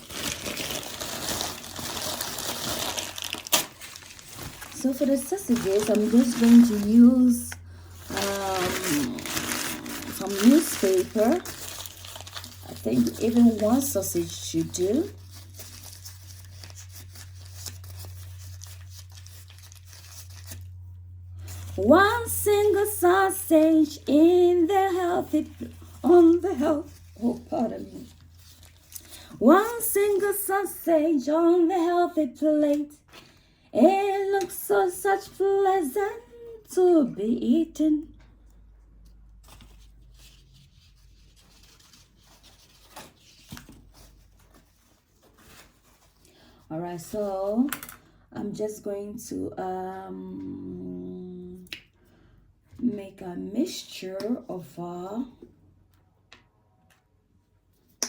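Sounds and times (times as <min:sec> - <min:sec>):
paper rubbing and scraping: 0:00.0 - 0:20.7, 0:24.7 - 0:29.1, 0:39.4 - 0:46.2
newspaper crumpling and tearing: 0:00.0 - 0:20.8, 0:21.4 - 0:22.9, 0:24.7 - 0:30.4, 0:39.3 - 0:46.6
steady low hum: 0:03.8 - 0:29.5.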